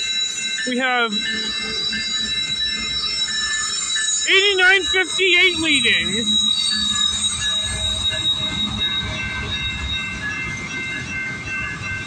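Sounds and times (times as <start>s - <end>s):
wheels squealing: 0.0s - 12.0s
train wheels rumbling on rail: 1.1s - 12.0s.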